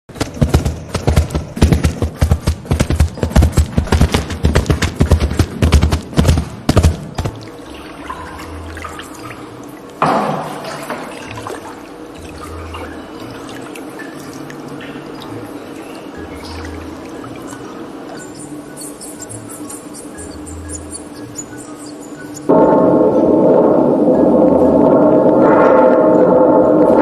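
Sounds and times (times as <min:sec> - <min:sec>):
water dripping: 0:02.2 - 0:27.0
water pouring: 0:07.1 - 0:18.2
water trickling: 0:07.1 - 0:22.5.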